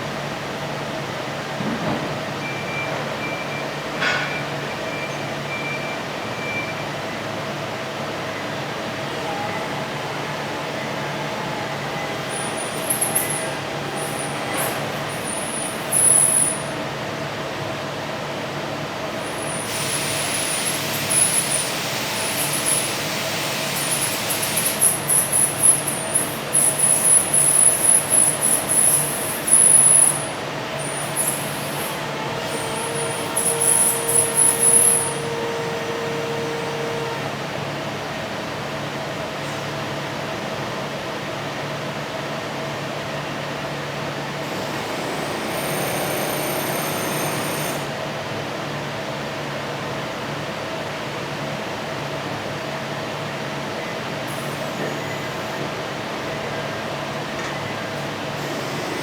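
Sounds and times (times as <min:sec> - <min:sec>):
high-pitched machine squeals: 0:10.7 - 0:16.9, 0:19.2 - 0:37.3, 0:44.4 - 0:48.0
steady hiss: 0:19.3 - 0:35.2.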